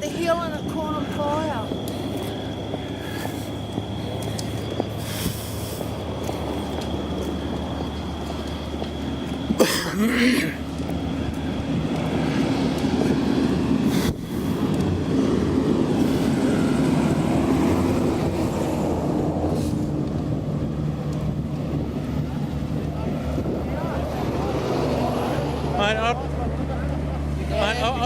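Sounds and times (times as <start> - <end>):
vehicle engine rumbling: 0.0 - 28.0.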